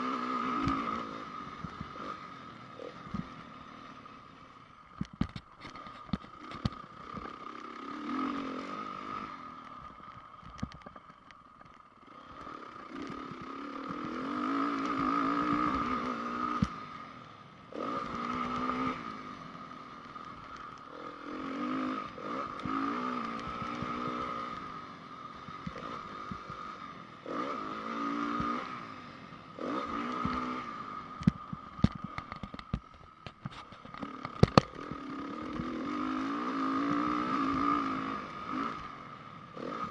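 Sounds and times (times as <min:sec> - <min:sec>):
motocross engine revving: 0:00.0 - 0:04.1, 0:06.4 - 0:09.6, 0:12.1 - 0:17.0, 0:17.7 - 0:19.9, 0:20.5 - 0:32.6, 0:33.9 - 0:39.9.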